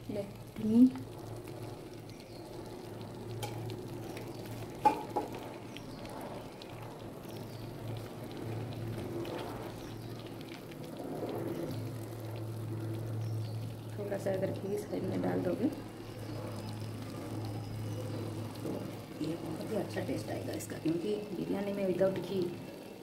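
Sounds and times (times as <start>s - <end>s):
gravy sizzling softly: 0.0s - 23.0s.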